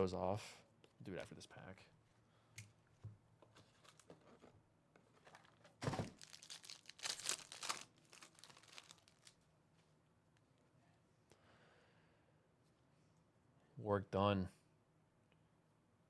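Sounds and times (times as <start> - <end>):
plastic wrapper crinkling and tearing: 3.7 - 4.2, 5.1 - 9.4.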